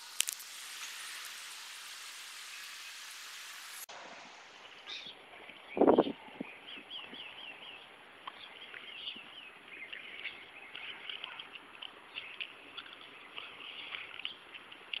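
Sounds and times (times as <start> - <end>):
small birds chirping: 4.7 - 15.0.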